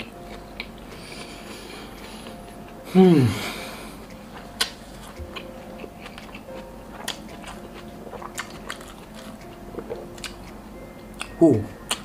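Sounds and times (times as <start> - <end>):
crisp chewing crunches: 4.6 - 10.5.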